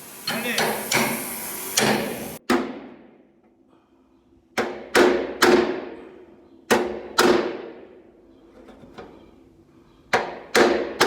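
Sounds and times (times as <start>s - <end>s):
steady hiss: 0.0s - 2.4s
hammer striking steel panel: 0.3s - 2.8s.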